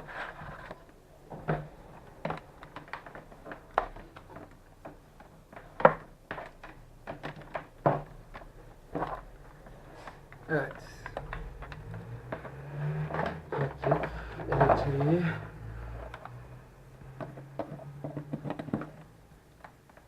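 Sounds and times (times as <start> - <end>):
power adapter and cable knocking: 11.0 - 15.2, 17.0 - 20.0.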